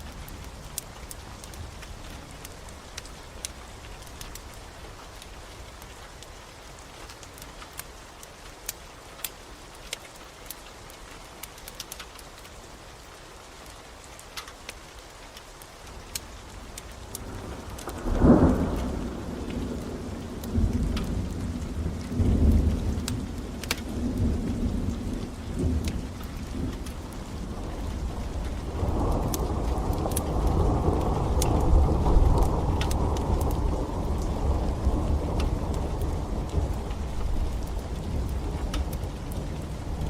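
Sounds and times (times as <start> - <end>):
steady rain: 0.0 - 40.0
wood fire crackling: 0.0 - 40.0
thunder rumbling: 17.2 - 40.0.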